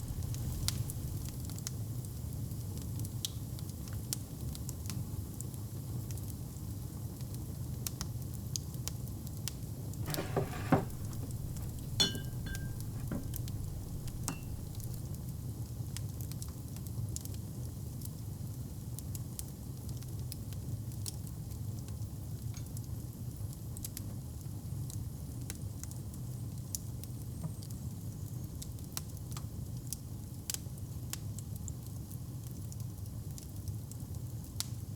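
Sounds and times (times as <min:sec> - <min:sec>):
wood fire crackling: 0:00.0 - 0:01.6, 0:10.0 - 0:15.0
loud knocks with ringing note: 0:10.1 - 0:15.0.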